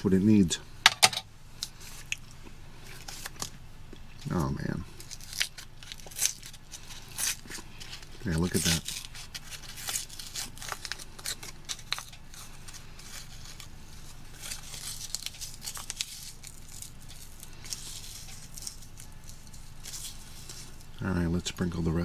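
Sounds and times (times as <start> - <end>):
seasoning packet crinkling: 4.2 - 21.0.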